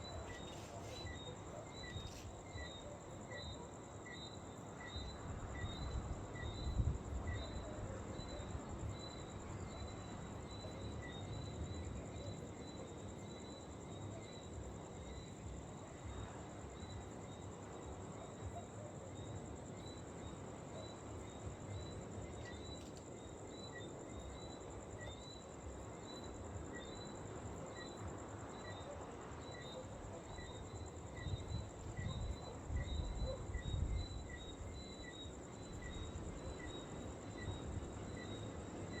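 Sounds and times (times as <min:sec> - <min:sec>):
insect chirps: 0:00.0 - 0:39.0
insects trilling: 0:00.0 - 0:39.0
wind on microphone: 0:31.2 - 0:34.3.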